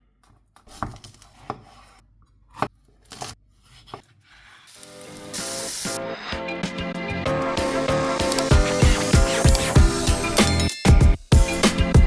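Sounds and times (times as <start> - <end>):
knife chopping on cutting board: 0.7 - 4.1
background music: 5.0 - 12.0.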